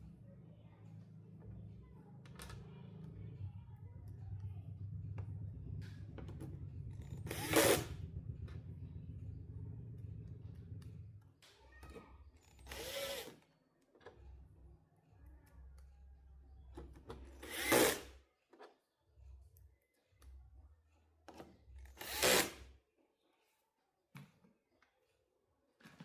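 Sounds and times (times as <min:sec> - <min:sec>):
handheld power tool running: 0:07.0 - 0:07.9, 0:12.5 - 0:13.3, 0:17.4 - 0:18.1, 0:22.0 - 0:22.6.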